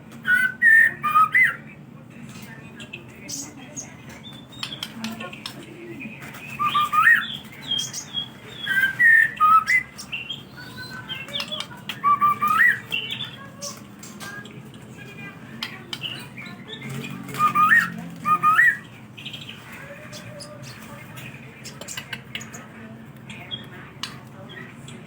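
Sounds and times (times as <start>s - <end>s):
bird singing whistled phrases: 0.3s - 1.6s, 6.6s - 8.0s, 8.6s - 9.9s, 10.7s - 12.9s, 17.3s - 18.8s.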